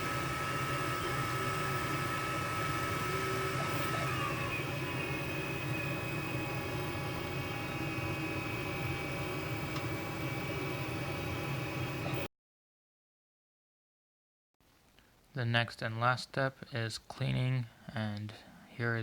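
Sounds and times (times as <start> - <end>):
printer fan hum: 0.0 - 12.3
stepper motor whine: 0.0 - 12.3.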